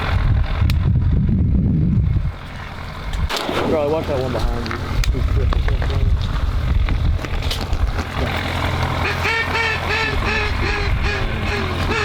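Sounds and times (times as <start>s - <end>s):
low rumble: 0.0s - 12.0s
duck quacks: 9.0s - 12.0s.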